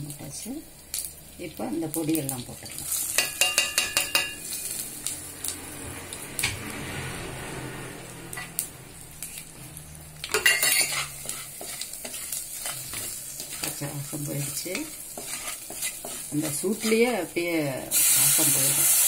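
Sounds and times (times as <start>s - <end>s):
spices sizzling in hot oil: 0.0s - 19.0s
wooden spatula scraping: 8.3s - 17.8s.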